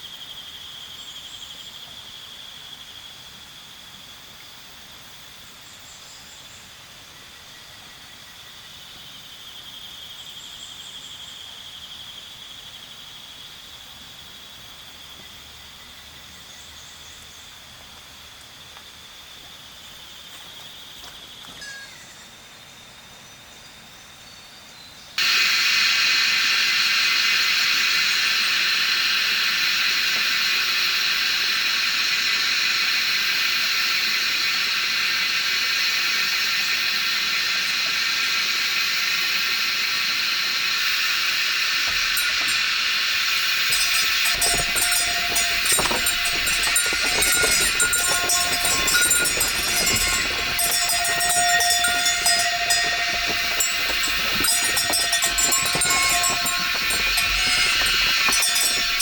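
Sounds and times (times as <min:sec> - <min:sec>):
insects shrilling: 0:25.2 - 0:59.0.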